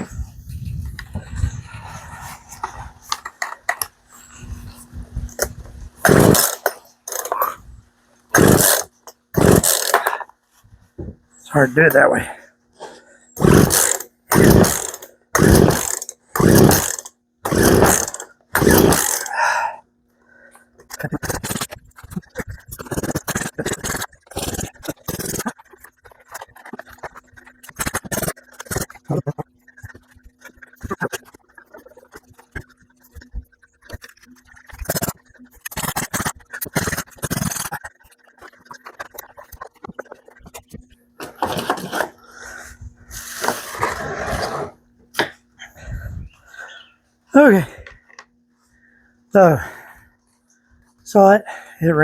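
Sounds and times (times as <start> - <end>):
chainsaw starter cord yanks: 5.4 - 7.6, 8.3 - 10.3, 13.4 - 19.7, 20.8 - 32.8, 33.8 - 42.5.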